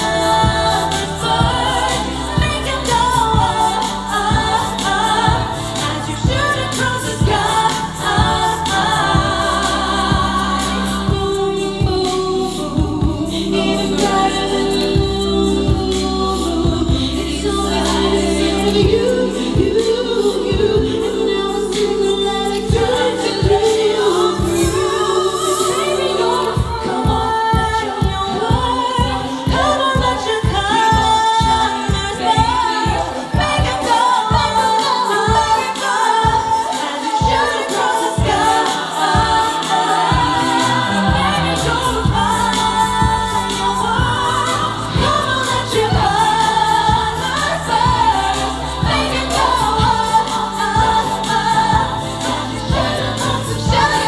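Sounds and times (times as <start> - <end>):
steady low beat: 0.0 - 30.7, 38.2 - 54.0
a cappella group singing: 0.0 - 54.0
steady beat: 22.5 - 54.0.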